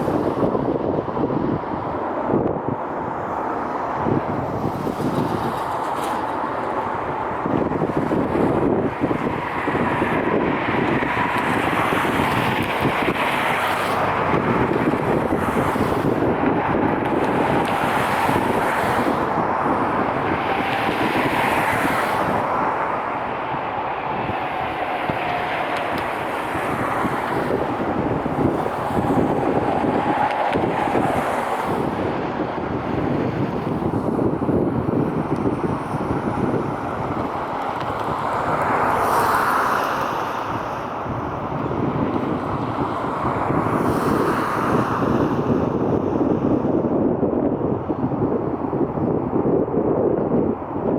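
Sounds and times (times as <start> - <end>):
wind buffeting microphone: 0.0 - 50.9
jet engines running: 5.6 - 39.0.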